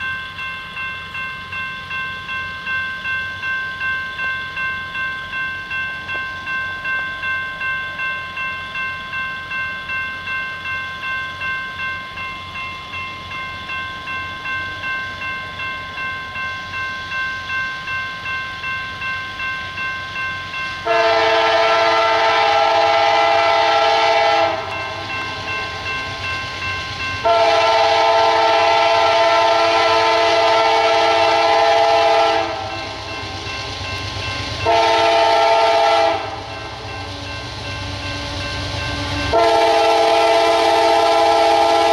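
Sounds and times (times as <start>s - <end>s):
locomotive air horn blasts: 20.8s - 24.7s, 27.2s - 32.8s, 34.6s - 36.4s, 39.0s - 41.9s.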